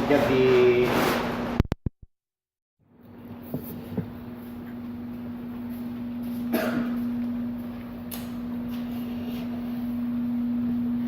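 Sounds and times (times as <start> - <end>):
steady hum: 3.0 - 11.0.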